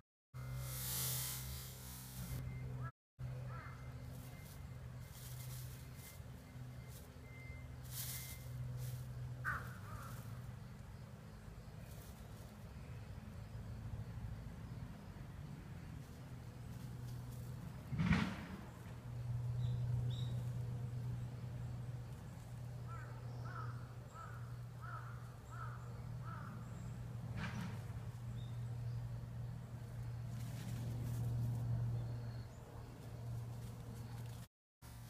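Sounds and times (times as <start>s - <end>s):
steady low hum: 0.4s - 17.9s
bird calling: 2.2s - 4.6s, 9.4s - 10.5s, 22.8s - 27.0s.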